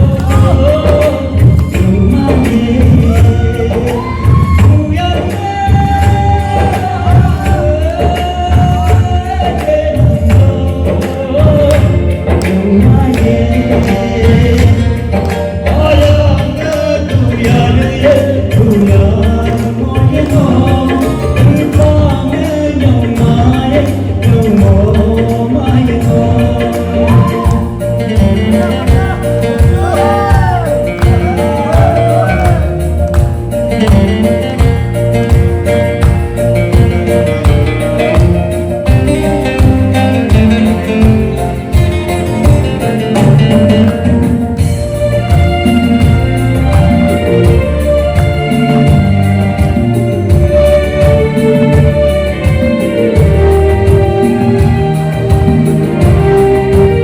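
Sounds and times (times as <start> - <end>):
person singing: 0.0 - 34.5
band with bass drum and percussion: 0.0 - 57.0
lead vocal singing sliding notes: 28.4 - 33.1.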